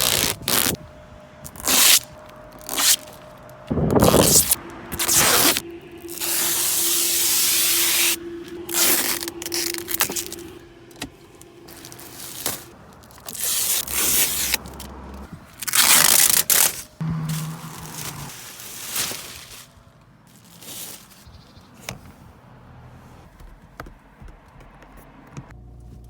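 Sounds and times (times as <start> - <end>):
plastic film being peeled off: 0.0 - 0.8, 1.5 - 3.2, 15.6 - 19.7.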